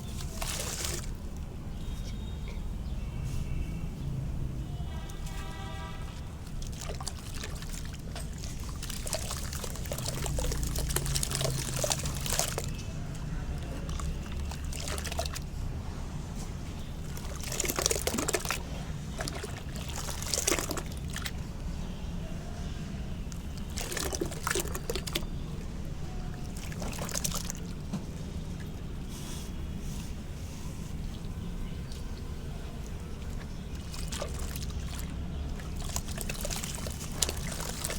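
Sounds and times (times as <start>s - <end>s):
crackly trickling water: 0.0s - 37.9s.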